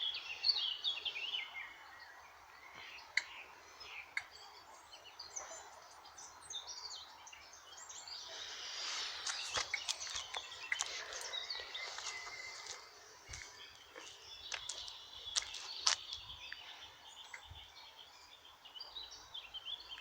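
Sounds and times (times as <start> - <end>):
birds singing and chirping: 0.0 - 20.0
outdoor background noise: 0.0 - 20.0.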